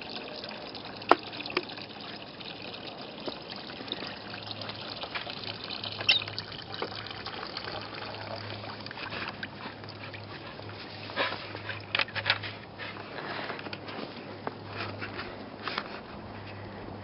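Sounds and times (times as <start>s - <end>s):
water trickling and splashing: 0.0s - 15.2s.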